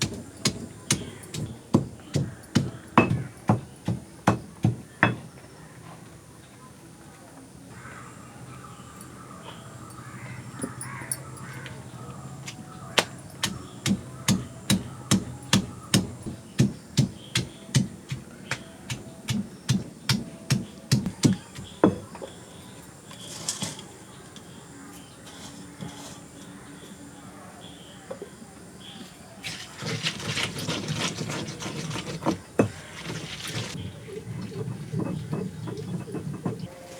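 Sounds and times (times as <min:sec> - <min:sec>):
blade chopping on hard surface: 0:00.0 - 0:05.2, 0:13.0 - 0:22.0.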